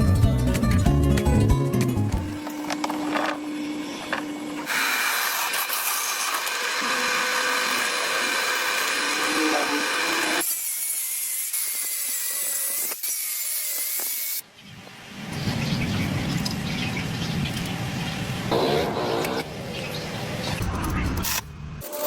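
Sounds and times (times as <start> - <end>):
power tool running: 2.2 - 14.4.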